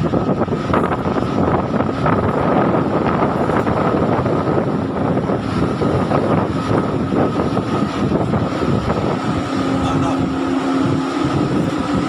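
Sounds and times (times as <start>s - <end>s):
boat engine running: 0.0s - 12.0s
wind buffeting microphone: 0.0s - 12.0s.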